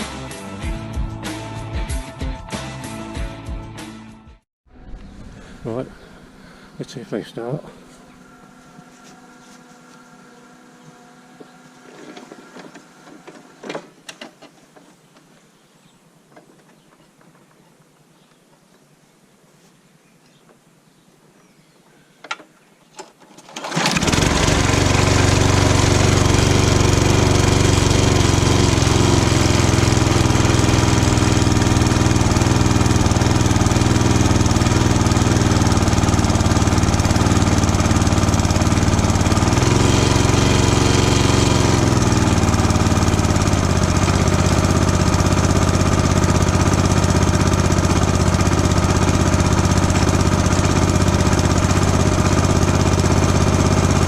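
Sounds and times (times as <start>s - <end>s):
lawn mower engine running: 4.7s - 14.9s, 23.0s - 54.0s.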